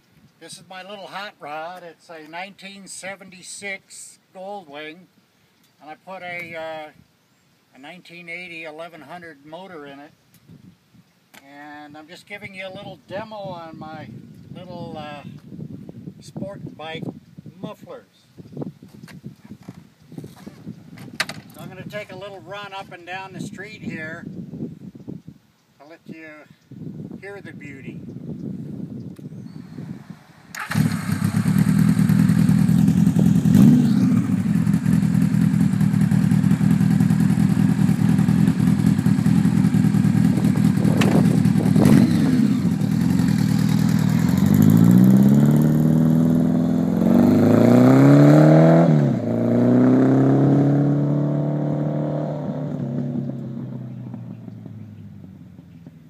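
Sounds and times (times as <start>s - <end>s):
motorcycle pulling away: 30.5s - 55.9s
motorcycle engine running: 30.6s - 47.8s.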